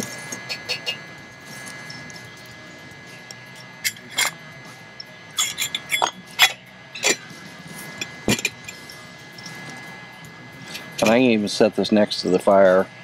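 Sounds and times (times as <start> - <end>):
metal cookware clinking: 5.4 - 7.3, 8.0 - 8.8.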